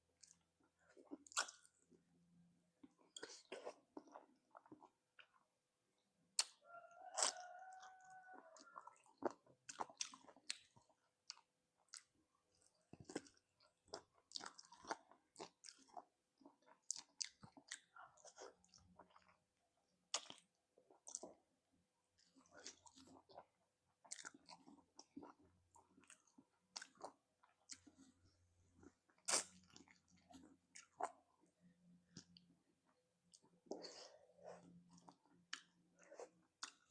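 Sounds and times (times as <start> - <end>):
chewing and biting: 0.2 - 2.0, 6.4 - 19.4, 20.1 - 21.4, 22.2 - 32.5, 33.2 - 36.9.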